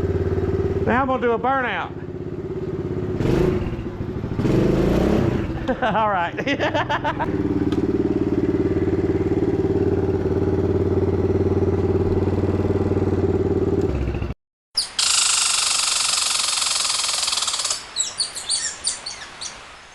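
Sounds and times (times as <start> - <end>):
motorbike engine revving: 0.0 - 14.4, 15.0 - 17.9
birds chirping: 14.8 - 19.9.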